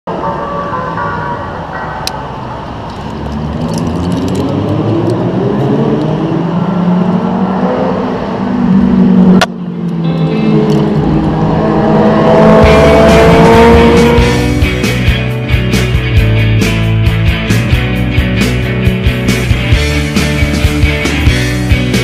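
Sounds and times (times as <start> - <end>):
vehicle engine revving: 3.0 - 15.5.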